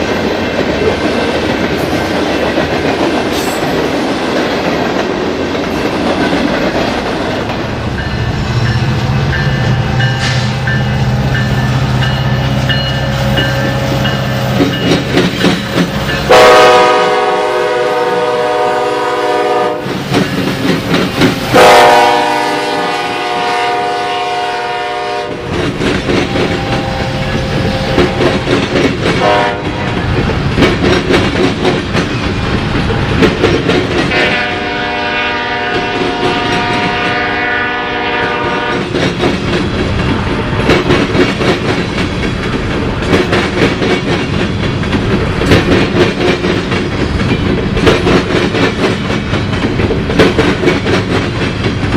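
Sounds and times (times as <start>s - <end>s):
train wheels clicking on rail joints: 0.0s - 24.3s, 24.9s - 51.9s
locomotive air horn: 16.3s - 19.9s, 21.5s - 25.5s, 26.3s - 28.3s, 29.2s - 30.0s, 34.1s - 38.8s.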